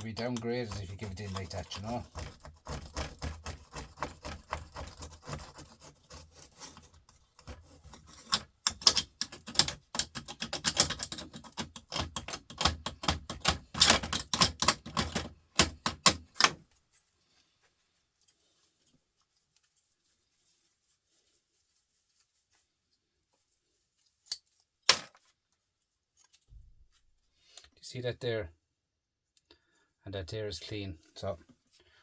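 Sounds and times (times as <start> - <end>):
hand tool clicking and snipping: 7.4 - 16.6.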